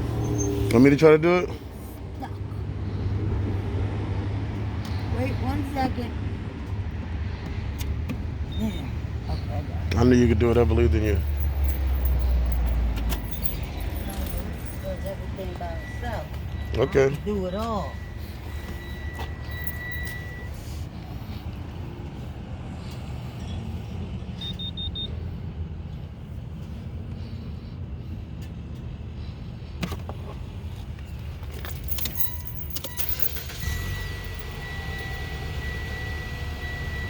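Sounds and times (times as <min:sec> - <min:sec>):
car engine idling: 0:04.5 - 0:37.0
keys jangling: 0:10.6 - 0:16.7, 0:18.8 - 0:20.6, 0:31.0 - 0:36.1
electronic triple beep: 0:15.5 - 0:20.6.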